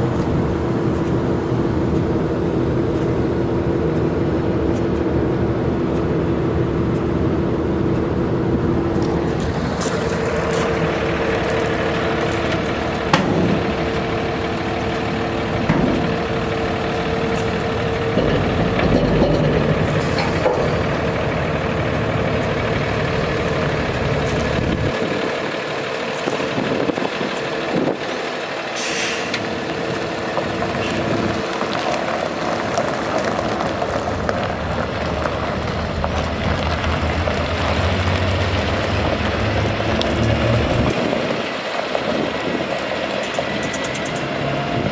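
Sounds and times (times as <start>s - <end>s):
diesel truck engine rumbling: 0.0s - 44.9s
air hisses: 28.8s - 29.6s.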